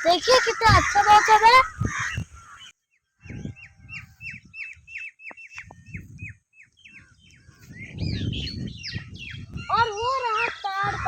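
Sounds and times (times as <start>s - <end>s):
bird chirping: 2.0s - 11.0s.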